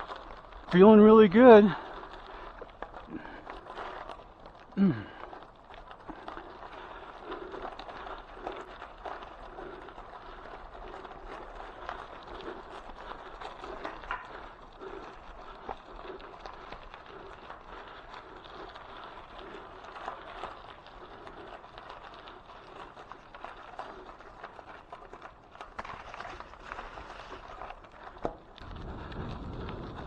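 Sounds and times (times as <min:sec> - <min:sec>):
bicycle tyres on gravel: 0:00.0 - 0:30.0.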